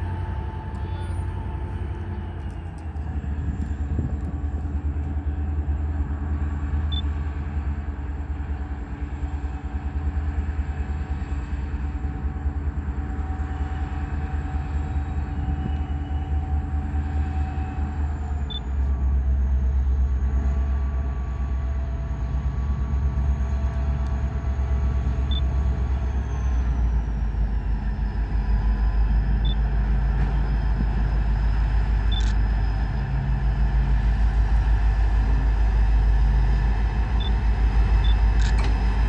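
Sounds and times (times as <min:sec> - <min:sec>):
freight train rumbling: 0:00.0 - 0:39.0.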